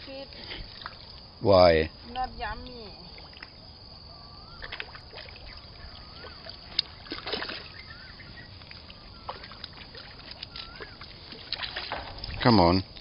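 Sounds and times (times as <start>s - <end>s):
water sounds: 0.0s - 13.0s
bird whistling: 4.1s - 4.7s, 5.4s - 6.6s, 7.6s - 9.6s, 10.4s - 11.0s
splash-like rush: 7.0s - 7.8s.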